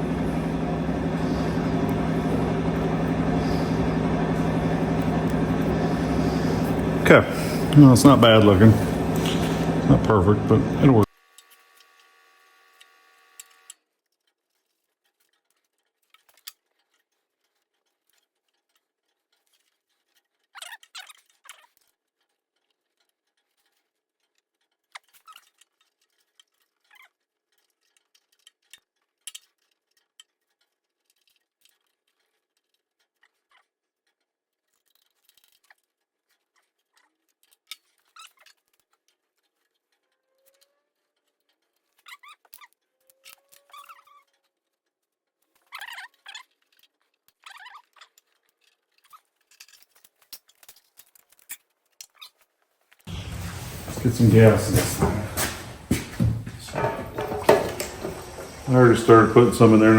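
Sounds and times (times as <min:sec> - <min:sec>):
scraping rustle: 0:53.1 - 0:59.9
clicks and taps of hand tools: 0:54.7 - 0:58.7.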